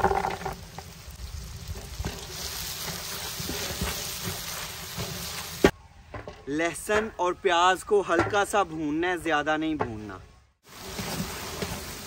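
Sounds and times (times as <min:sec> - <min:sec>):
onions sizzling in hot oil: 0:00.0 - 0:05.7, 0:10.6 - 0:12.0
wooden spatula scraping pot: 0:01.8 - 0:05.7.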